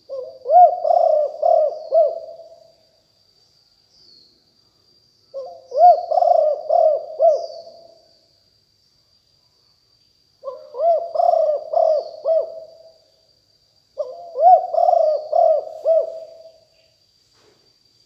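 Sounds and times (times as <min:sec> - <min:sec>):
dove cooing: 0:00.0 - 0:02.6, 0:05.4 - 0:07.9, 0:10.4 - 0:12.9, 0:14.0 - 0:16.6.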